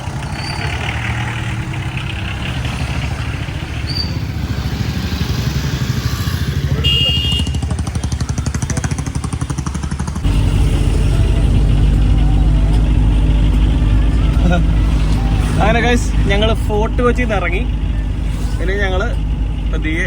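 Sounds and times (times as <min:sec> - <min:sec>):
vehicle engine pulsing: 0:00.0 - 0:20.0
low hum: 0:10.2 - 0:20.0.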